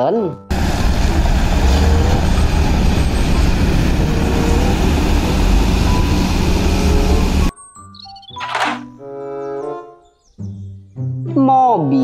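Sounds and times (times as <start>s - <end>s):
truck diesel engine under load: 0.5s - 7.5s.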